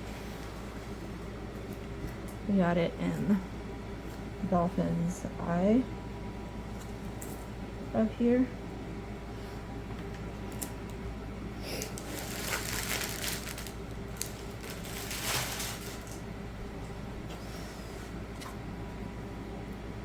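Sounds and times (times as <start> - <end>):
steady low hum: 0.0 - 20.0
rustling and crinkling packaging: 10.4 - 10.8, 11.7 - 16.3.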